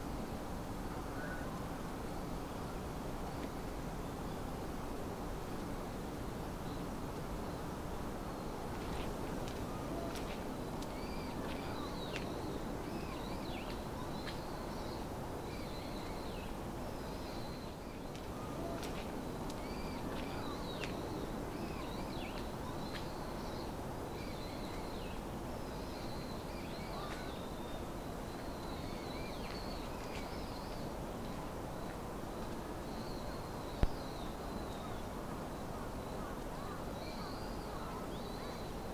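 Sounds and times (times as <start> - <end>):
small birds chirping: 8.4 - 35.2.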